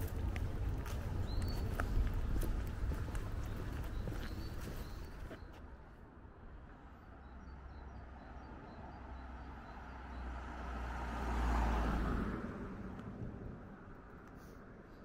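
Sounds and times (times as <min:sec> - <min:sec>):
road vehicle passing by: 0:07.0 - 0:15.0.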